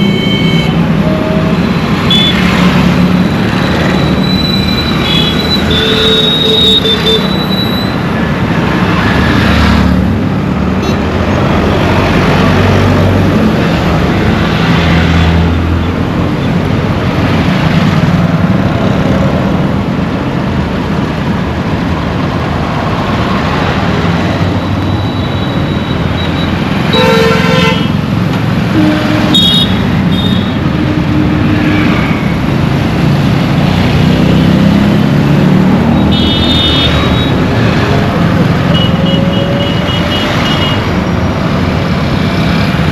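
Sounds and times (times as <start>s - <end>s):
vehicle horns honking: 0.0s - 2.5s, 4.2s - 7.9s, 26.9s - 28.0s, 28.7s - 30.6s, 36.0s - 37.4s, 38.7s - 40.9s
engine rumble and road noise: 0.0s - 42.9s.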